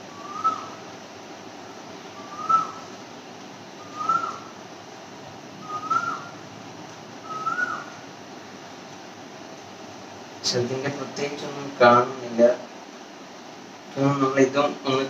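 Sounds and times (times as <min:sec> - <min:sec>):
bird whistling call: 0:00.1 - 0:00.8, 0:02.2 - 0:02.9, 0:03.8 - 0:04.5, 0:05.6 - 0:06.4, 0:07.2 - 0:07.9.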